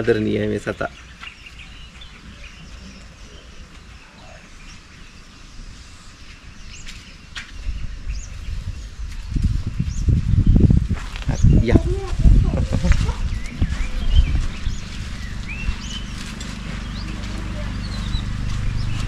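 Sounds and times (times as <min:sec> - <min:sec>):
birds chirping: 0:00.0 - 0:19.0
low rumble: 0:07.6 - 0:19.0.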